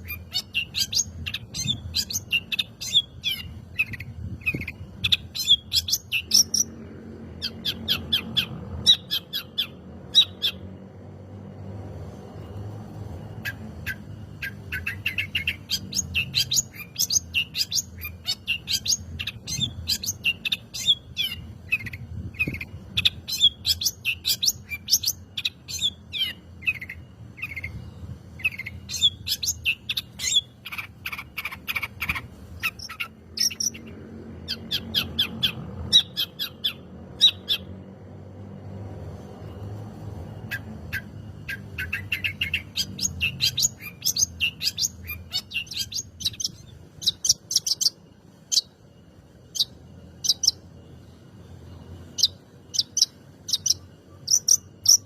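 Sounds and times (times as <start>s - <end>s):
shrike singing sharp chirps: 40.3s - 55.0s.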